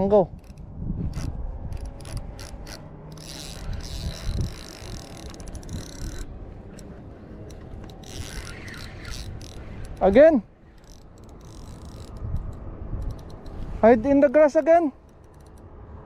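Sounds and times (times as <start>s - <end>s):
fishing reel clicking and ratcheting: 0.3s - 15.6s.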